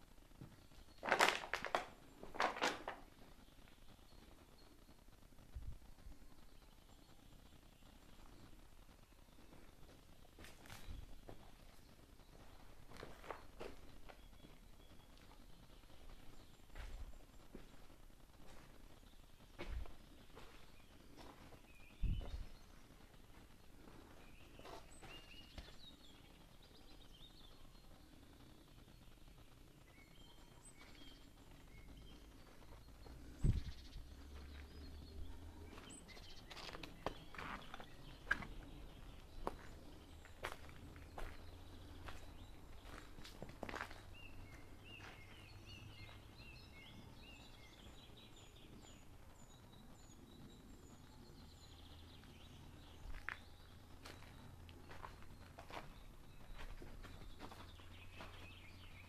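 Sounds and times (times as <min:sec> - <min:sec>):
faint bird chirps: 0:18.5 - 0:59.0.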